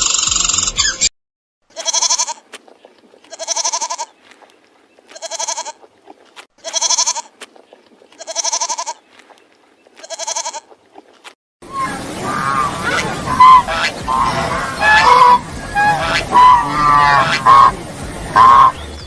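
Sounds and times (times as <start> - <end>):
goat bleating: 1.7 - 2.5, 3.2 - 4.1, 5.1 - 5.8, 6.6 - 7.4, 8.1 - 9.0, 10.0 - 10.7, 12.5 - 17.7.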